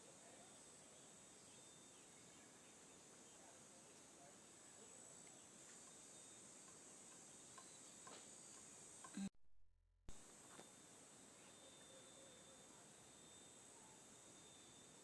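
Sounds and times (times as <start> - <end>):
insects chirring: 0.0 - 9.2, 10.3 - 15.0
soft ticks: 5.2 - 6.0, 6.6 - 9.3.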